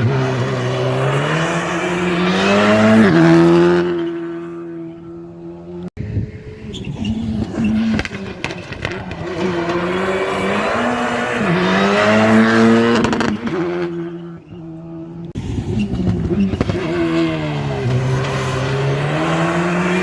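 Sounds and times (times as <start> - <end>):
rally car engine revving: 0.0 - 20.0
exhaust pops: 6.8 - 20.0.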